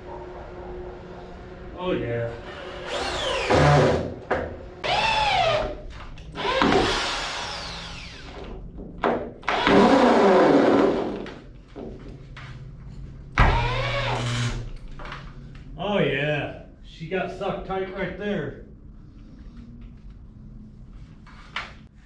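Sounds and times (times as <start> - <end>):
power drill driving screws: 2.4 - 4.0, 4.8 - 5.8, 6.4 - 8.5, 9.4 - 11.2, 13.4 - 14.7.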